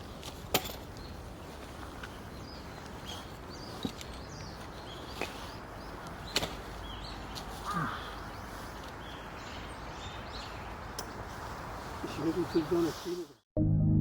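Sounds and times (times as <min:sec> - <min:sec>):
outdoor background noise: 0:00.0 - 0:13.4
small birds chirping: 0:00.0 - 0:13.4.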